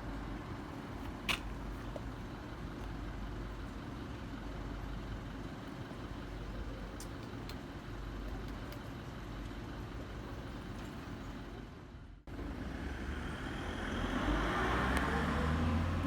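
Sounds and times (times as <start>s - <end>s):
road traffic hum: 0.0s - 16.0s
vehicle passing by: 12.5s - 16.0s.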